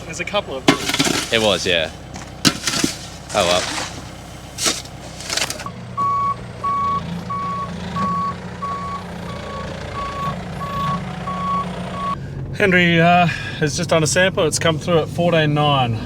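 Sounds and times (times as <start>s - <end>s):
engine humming: 0.0s - 16.0s
reversing alarm beeping: 6.0s - 12.2s.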